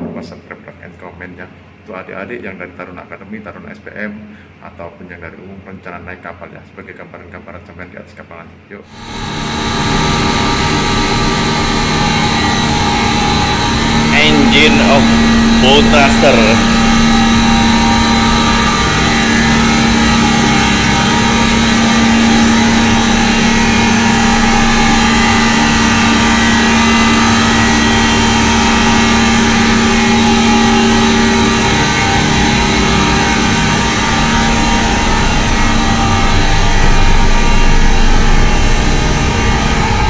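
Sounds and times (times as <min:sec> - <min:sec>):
diesel engine droning: 0:08.9 - 0:40.0.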